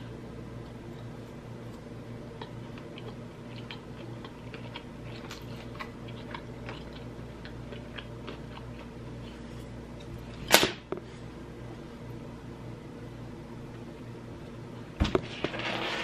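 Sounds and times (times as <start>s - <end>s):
mouth chewing sounds: 2.4s - 9.5s.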